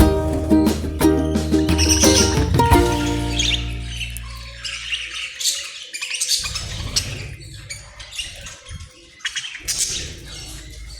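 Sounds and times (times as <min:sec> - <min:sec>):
parrots chirping and squawking: 0:01.4 - 0:10.9.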